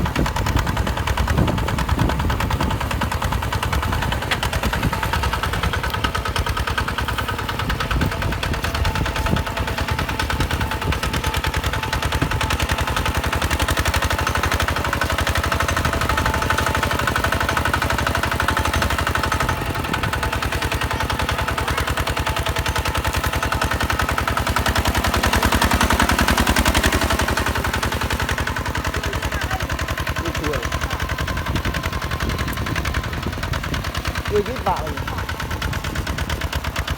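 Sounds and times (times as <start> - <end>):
diesel engine chugging: 0.0 - 36.9.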